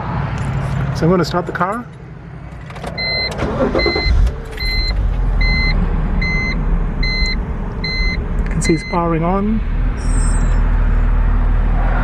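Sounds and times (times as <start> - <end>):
car engine starting and idling: 0.3 - 11.7
electronic warning beep: 3.0 - 9.1.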